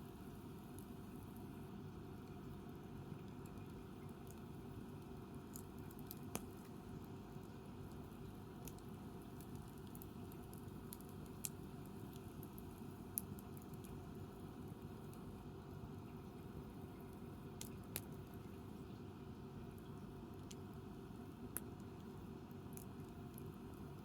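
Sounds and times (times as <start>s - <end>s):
campfire crackling: 4.0s - 7.0s, 7.8s - 15.3s.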